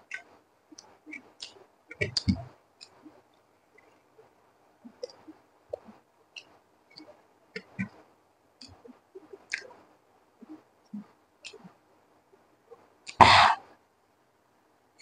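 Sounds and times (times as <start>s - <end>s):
mouth clicks: 9.4s - 9.8s.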